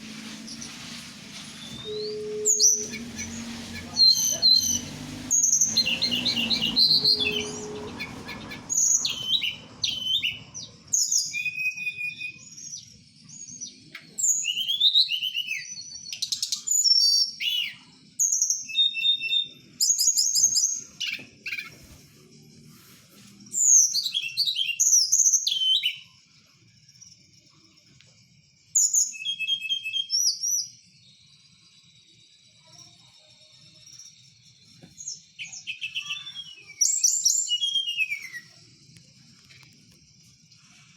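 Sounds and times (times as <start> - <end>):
bird singing whistled phrases: 1.5 - 21.9, 23.6 - 26.1, 28.8 - 30.8, 35.0 - 38.7.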